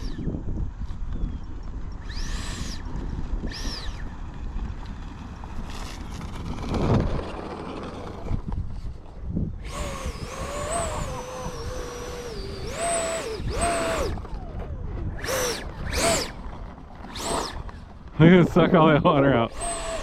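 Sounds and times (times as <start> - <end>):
electric ducted fan whine: 0.0 - 20.0.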